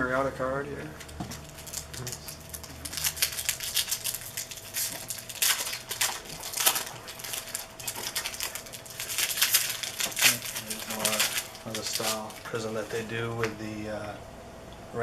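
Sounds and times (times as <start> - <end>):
trading cards flicking and rustling: 1.0 - 13.6
cards snapping: 2.9 - 12.4.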